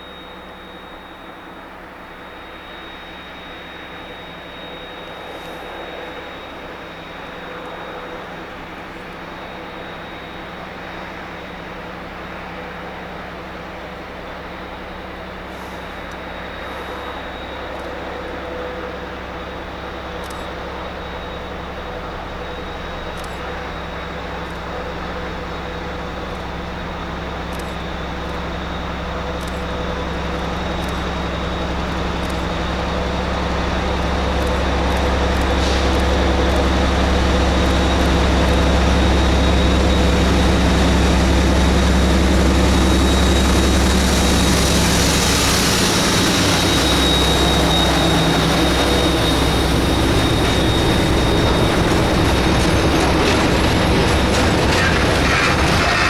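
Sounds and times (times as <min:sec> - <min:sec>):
diesel locomotive engine drone: 0:00.0 - 0:56.0
train wheels and wagons rolling: 0:12.0 - 0:56.0.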